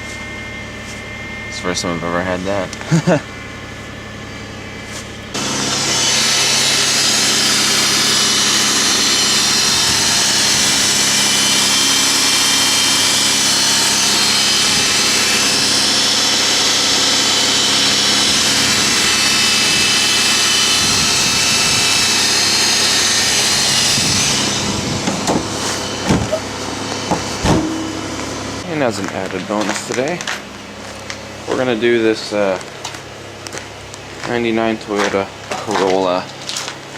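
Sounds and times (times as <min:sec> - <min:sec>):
car engine idling: 0:24.3 - 0:29.3.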